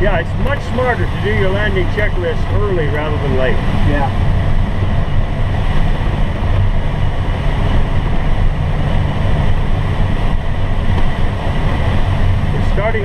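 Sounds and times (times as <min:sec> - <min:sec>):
air rushing past cockpit: 0:00.0 - 0:13.0
wind buffeting microphone: 0:00.0 - 0:13.0.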